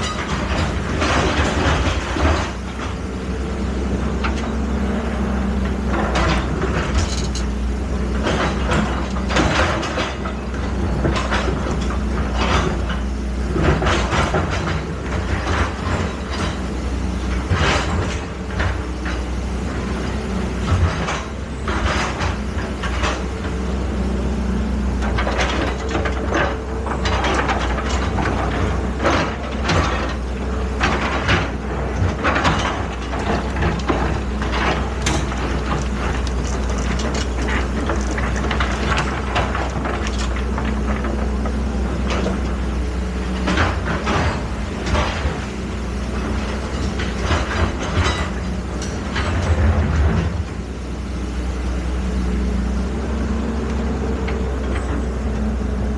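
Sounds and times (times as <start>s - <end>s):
machine knocks and scrapes: 0.0s - 3.1s, 5.7s - 19.4s, 25.0s - 50.6s
excavator diesel engine running: 0.0s - 55.9s.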